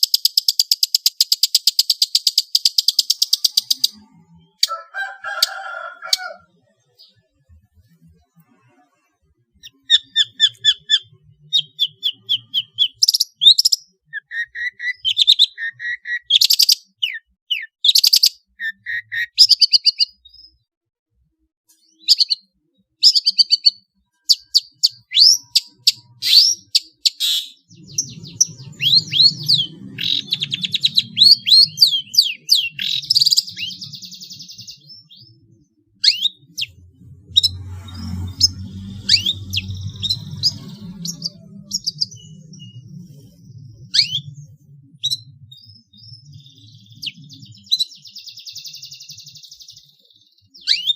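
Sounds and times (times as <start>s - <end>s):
shrike singing chirps and trills: 0.0s - 20.6s, 21.8s - 50.9s
low hum: 36.4s - 47.0s.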